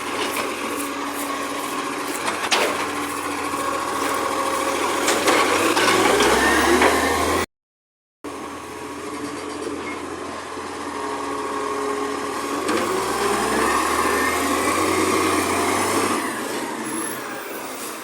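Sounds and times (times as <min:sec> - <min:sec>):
garbage truck engine: 0:00.0 - 0:07.5, 0:08.3 - 0:18.0.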